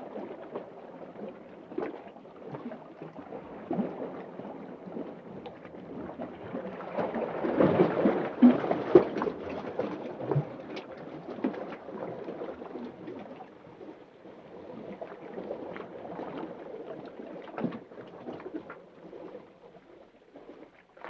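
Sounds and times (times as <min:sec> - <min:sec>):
muffled underwater water movement: 0:00.0 - 0:21.0.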